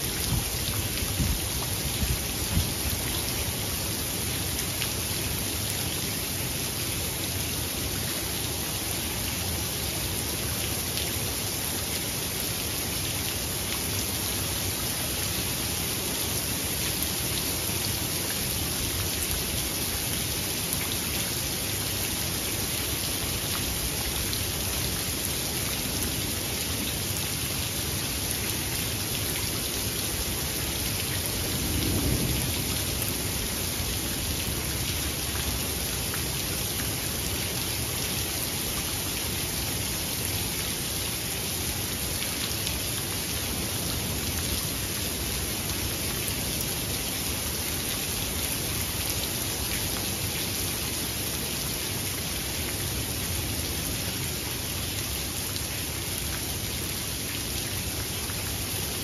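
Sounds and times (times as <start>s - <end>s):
steady rain falling: 0.0s - 59.0s
low rumble of thunder: 31.1s - 34.3s.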